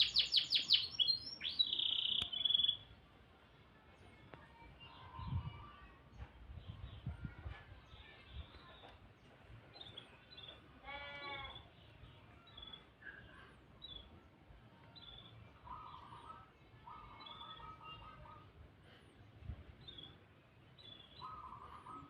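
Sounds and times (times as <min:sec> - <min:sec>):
canary chirping: 0:00.0 - 0:02.9.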